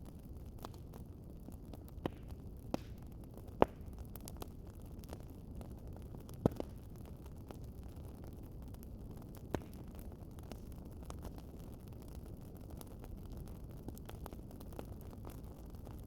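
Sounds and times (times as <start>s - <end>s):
wood fire crackling: 0.0s - 16.0s
sharp pops from fire: 1.8s - 5.2s, 6.2s - 7.1s, 9.3s - 11.4s.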